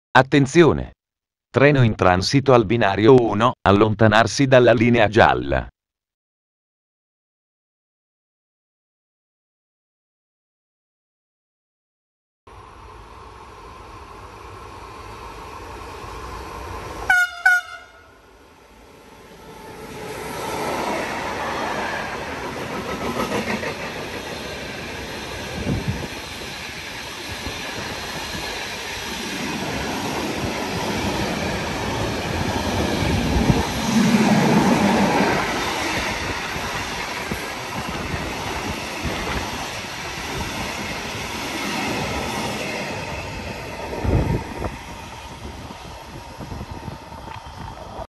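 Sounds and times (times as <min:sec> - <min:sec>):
train passing at speed: 0:12.5 - 0:48.0
train horn blasts: 0:17.1 - 0:18.2.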